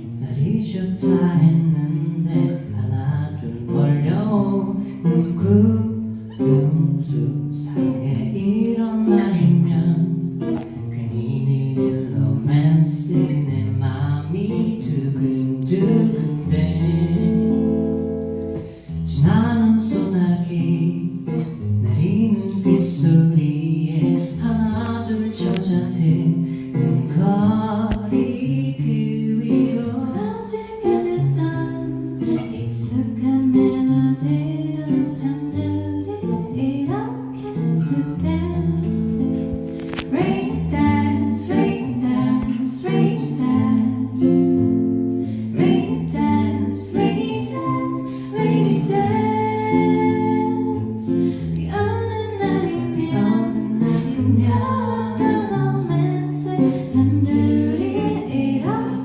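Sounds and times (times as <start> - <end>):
woman singing: 0.0 - 18.2, 18.8 - 59.0
guitar playing: 0.0 - 59.0.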